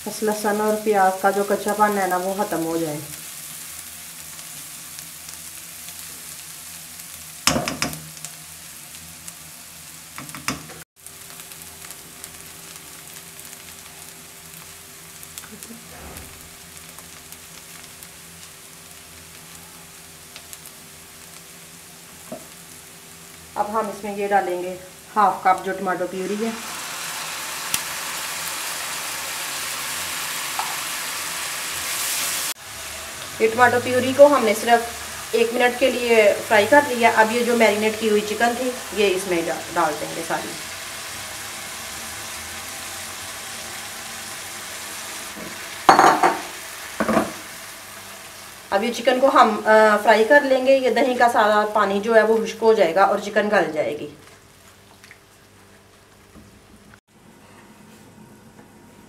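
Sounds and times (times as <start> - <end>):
onion and garlic frying in oil: 0.0 - 57.0
small crackles: 11.0 - 21.5, 54.1 - 57.0.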